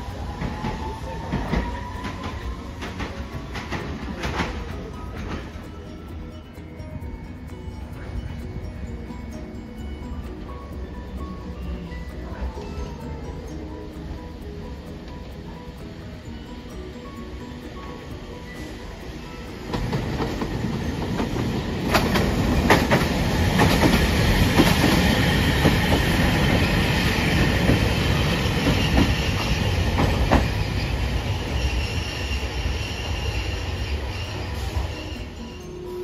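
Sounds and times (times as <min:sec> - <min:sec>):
streetcar wheels clacking over rail joints: 0:00.0 - 0:06.3, 0:18.0 - 0:32.6
high-pitched wheel squeal: 0:30.5 - 0:36.0.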